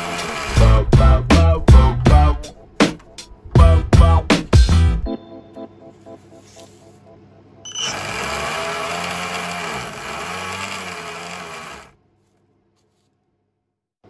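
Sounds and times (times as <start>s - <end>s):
small electric motor running: 0.0s - 0.7s, 7.7s - 12.0s.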